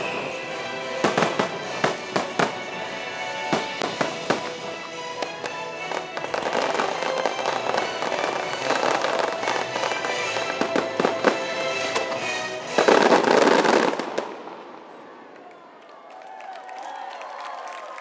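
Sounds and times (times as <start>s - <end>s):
loud show music: 0.0s - 14.0s
fireworks bursting and crackling: 0.0s - 15.5s.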